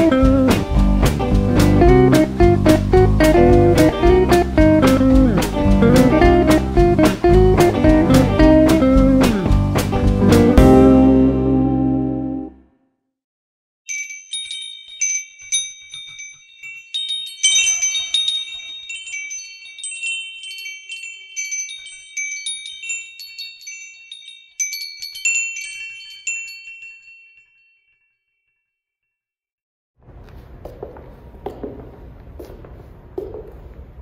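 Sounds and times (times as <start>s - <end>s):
chimes tinkling: 13.9s - 28.7s.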